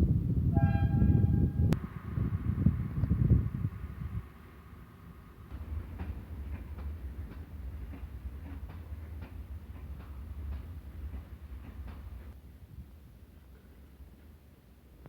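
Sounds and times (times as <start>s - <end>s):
train low rumble: 0.0s - 15.0s
train wheels clicking over rail joints: 4.2s - 12.4s.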